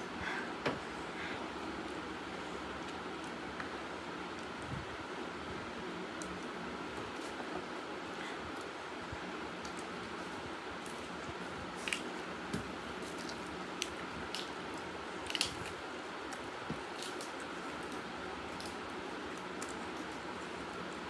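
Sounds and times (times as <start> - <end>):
crisp clicks: 11.8 - 20.9.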